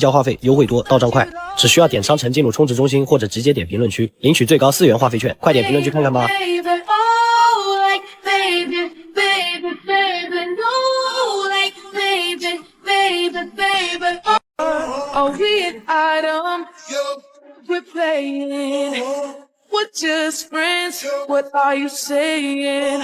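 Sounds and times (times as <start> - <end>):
high-pitched voice singing: 5.5 - 17.0.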